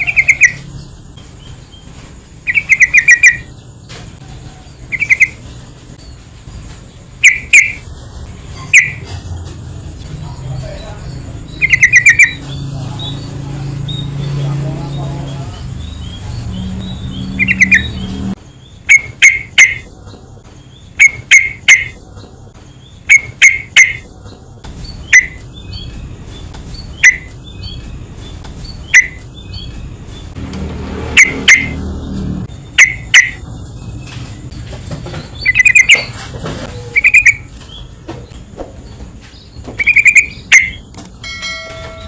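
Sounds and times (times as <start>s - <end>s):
bulbul calling: 0.0s - 0.9s, 2.4s - 3.7s, 4.8s - 5.4s, 7.2s - 7.9s, 8.6s - 9.2s, 10.1s - 13.3s, 15.0s - 20.0s, 20.9s - 22.0s, 23.0s - 24.1s, 24.9s - 26.0s, 26.8s - 27.8s, 28.6s - 29.9s, 31.1s - 31.8s, 32.6s - 33.5s, 35.3s - 36.2s, 36.8s - 37.9s, 39.4s - 40.9s.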